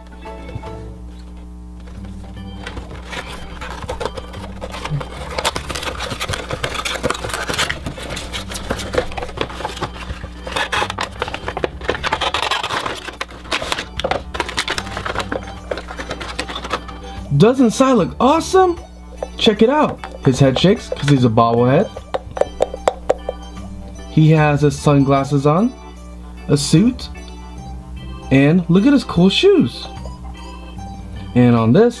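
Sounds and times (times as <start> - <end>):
quiet background music: 0.0 - 32.0
packaging crinkling and clicking: 1.2 - 17.2, 19.2 - 21.3.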